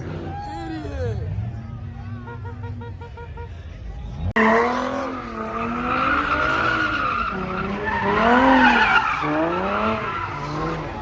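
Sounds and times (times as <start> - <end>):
car engine revving: 4.2 - 11.0.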